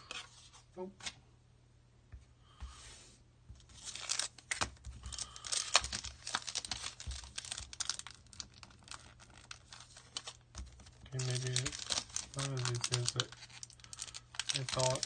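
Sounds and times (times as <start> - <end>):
foil wrapper tearing and crinkling: 3.8 - 15.0.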